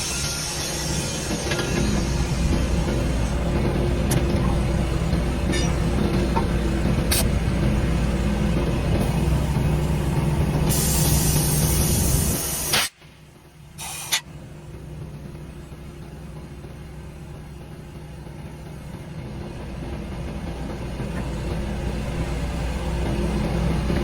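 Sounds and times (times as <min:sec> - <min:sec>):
heavy truck engine rumbling: 0:00.0 - 0:24.0
compressed air hiss: 0:10.6 - 0:13.0, 0:13.8 - 0:14.2.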